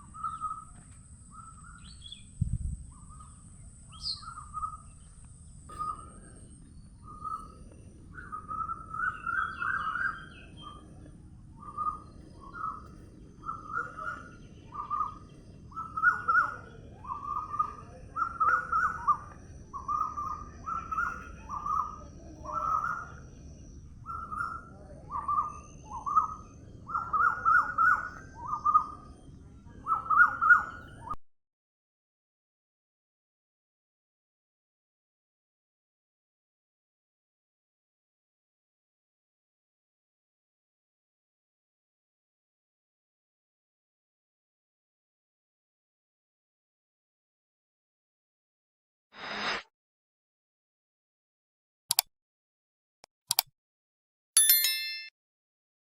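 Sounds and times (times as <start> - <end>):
faint steady high tone: 54.4 - 55.1.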